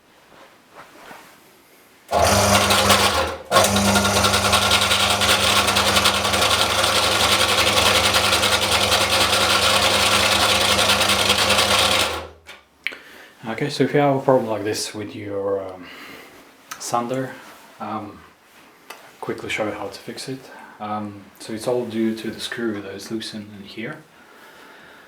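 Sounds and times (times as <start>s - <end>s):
belt sander motor running: 2.1s - 12.4s.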